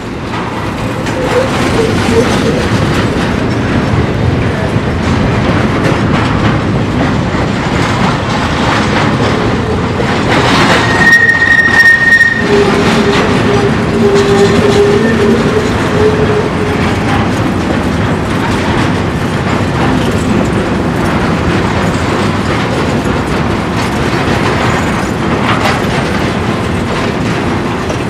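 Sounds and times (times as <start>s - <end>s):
train wheels rumbling and clattering: 0.0s - 28.0s
high wheel squeal: 10.6s - 16.8s.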